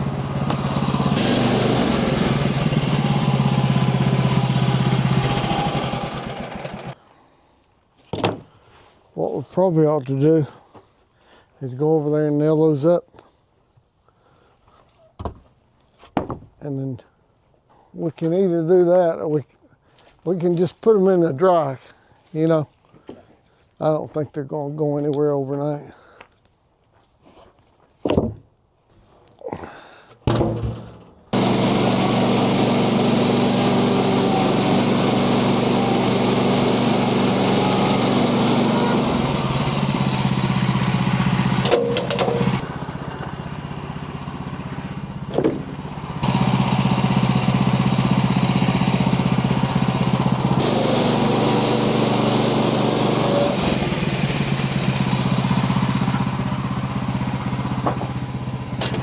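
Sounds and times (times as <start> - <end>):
engine running: 0.0 - 7.0, 30.7 - 59.0
knocks: 16.2 - 16.6, 30.3 - 31.1, 57.8 - 58.2.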